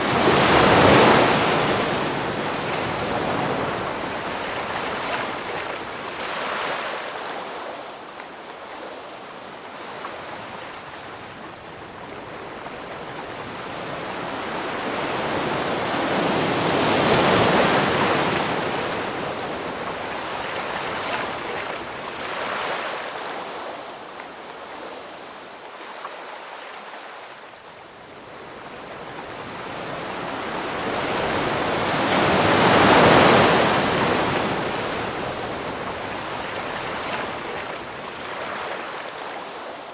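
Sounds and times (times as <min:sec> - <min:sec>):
ocean waves breaking: 0:00.0 - 0:08.0, 0:28.4 - 0:39.9.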